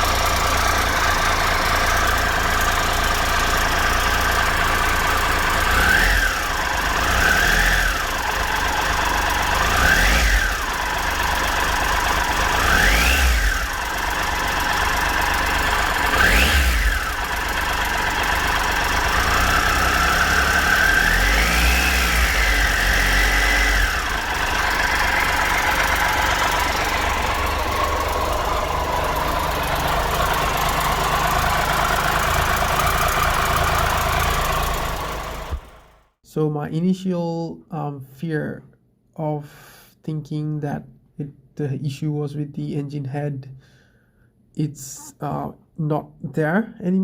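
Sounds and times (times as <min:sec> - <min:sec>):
motorcycle engine idling and revving: 0:00.0 - 0:36.2.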